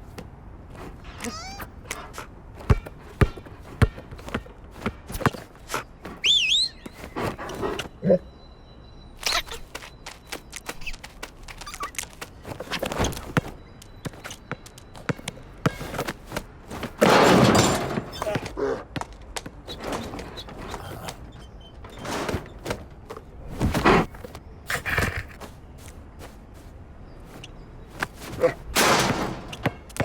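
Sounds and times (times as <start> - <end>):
heavy hits: 28.4 - 30.0.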